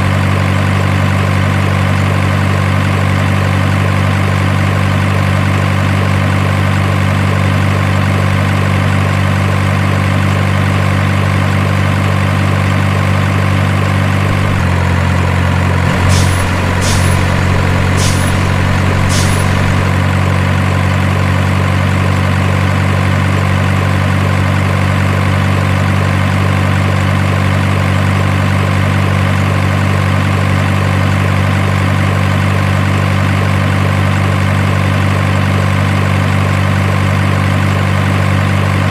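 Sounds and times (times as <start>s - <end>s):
diesel truck engine idling: 12.0s - 25.1s
short sharp hisses: 15.9s - 20.0s.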